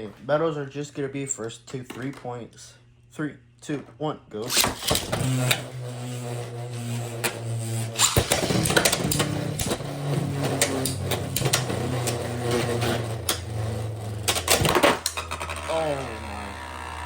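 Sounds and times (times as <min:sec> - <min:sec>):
spinning tops whirring: 0:04.5 - 0:17.0
tops clacking together: 0:08.0 - 0:15.7.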